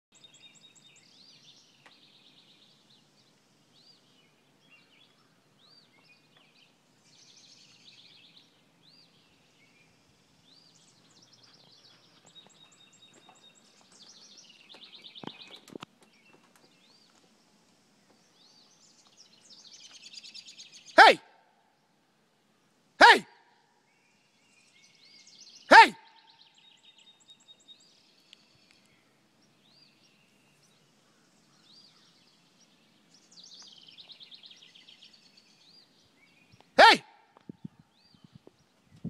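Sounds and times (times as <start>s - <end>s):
wild birds calling: 0.3s - 21.9s, 23.9s - 38.8s.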